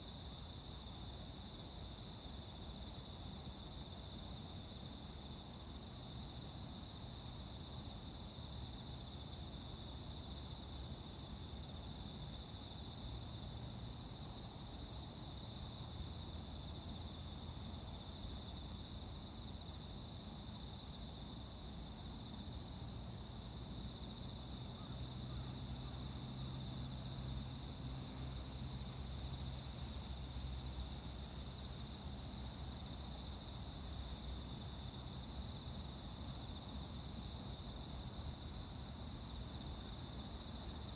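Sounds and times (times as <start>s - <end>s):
insects trilling: 15.3s - 40.9s.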